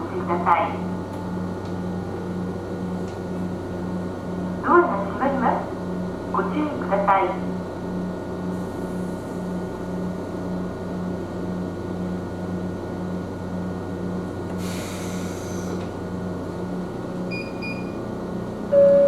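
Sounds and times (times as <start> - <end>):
train running hum: 0.0 - 19.0
brief beep: 18.8 - 19.0.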